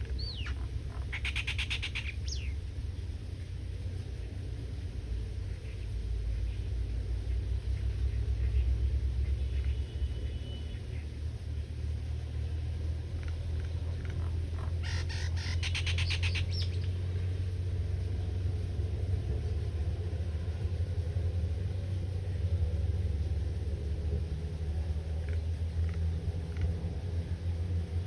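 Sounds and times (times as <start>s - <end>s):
bird trilling rapidly: 0.0s - 2.6s, 14.7s - 16.9s
faint bird chirps: 0.0s - 2.6s, 13.6s - 17.0s
steady low rumble: 0.0s - 28.0s.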